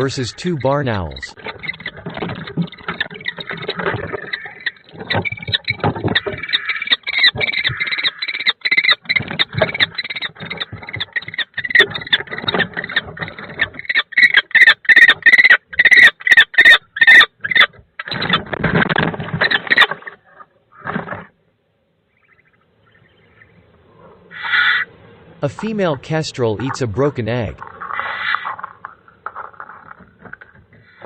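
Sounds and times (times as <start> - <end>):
birds screeching: 0.0 - 18.5, 19.4 - 21.3, 22.1 - 31.0
scuffling and scraping: 25.5 - 31.0.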